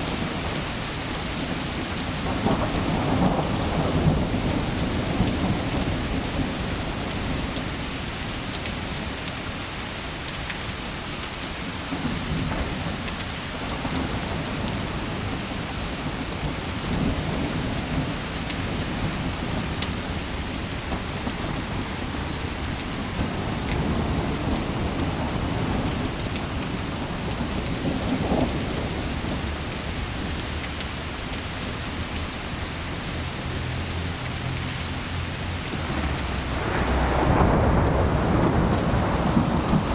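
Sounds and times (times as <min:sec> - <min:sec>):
steady rain: 0:00.0 - 0:39.9
thunder rumbling: 0:01.4 - 0:07.9, 0:12.0 - 0:30.6, 0:34.9 - 0:39.9.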